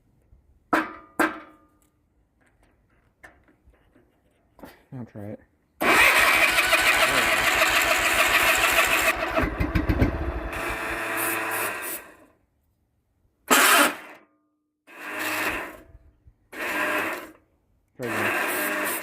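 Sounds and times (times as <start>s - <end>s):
electric starter cranking engine: 5.8s - 12.2s, 13.5s - 14.2s, 14.9s - 15.8s, 16.5s - 17.4s, 18.0s - 19.0s.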